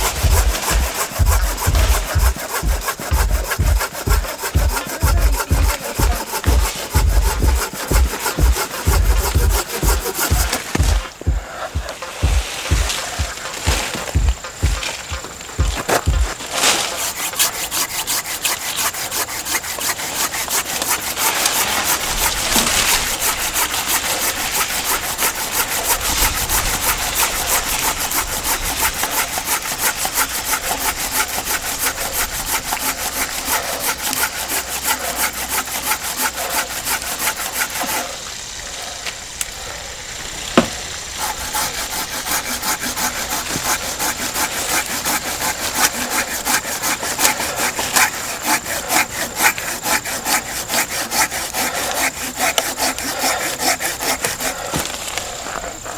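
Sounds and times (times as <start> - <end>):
sharp knock: 0.0 - 16.4
hand saw cutting wood: 0.0 - 38.8, 40.6 - 55.9.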